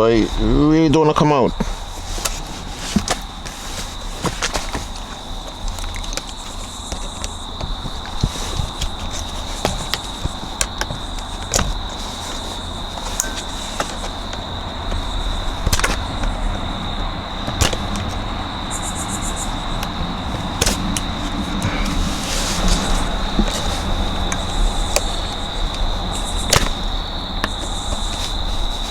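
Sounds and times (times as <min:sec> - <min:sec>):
thin high whine: 0:08.2 - 0:17.6.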